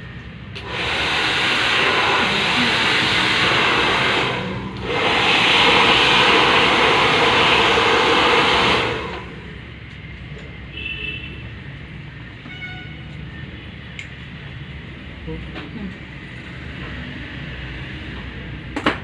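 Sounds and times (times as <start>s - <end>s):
hair dryer blowing: 0.5s - 9.6s.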